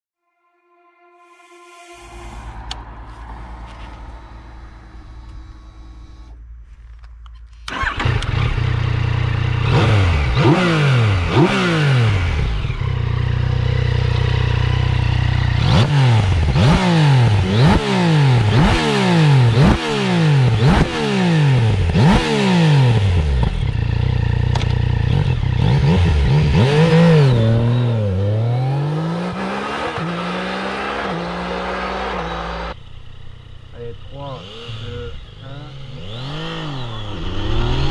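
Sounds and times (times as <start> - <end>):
motorcycle engine revving: 1.8 - 37.9
motorcycle engine starting: 2.1 - 30.0, 30.6 - 37.9
motorcycle engine idling: 32.8 - 36.0.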